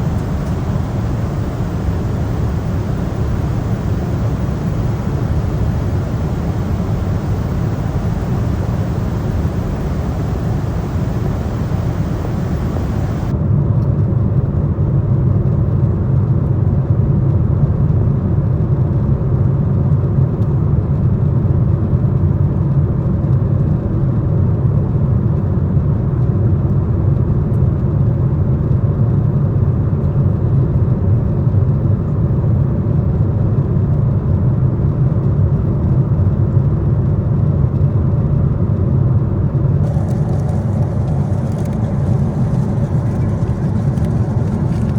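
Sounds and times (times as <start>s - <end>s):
airliner cabin noise: 0.0s - 13.3s, 39.8s - 44.9s.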